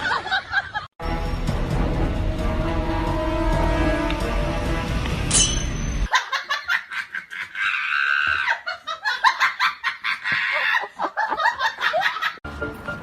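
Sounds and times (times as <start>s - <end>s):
music: 1.0s - 6.1s, 12.4s - 13.0s
person laughing hard: 6.1s - 12.4s.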